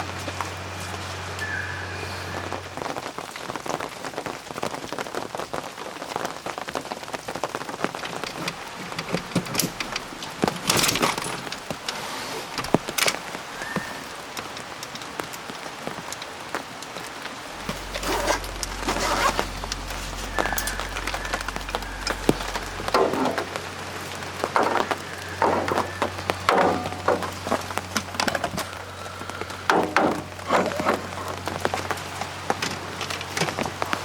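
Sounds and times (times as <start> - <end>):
rain spattering on a surface: 0.0 - 34.0
low hum: 17.0 - 33.3.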